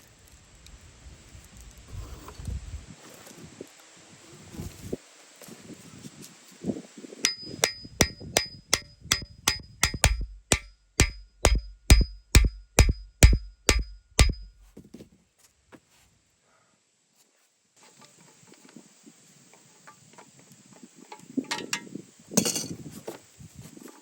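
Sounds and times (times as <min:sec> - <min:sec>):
hammer striking metal: 0:07.3 - 0:14.6.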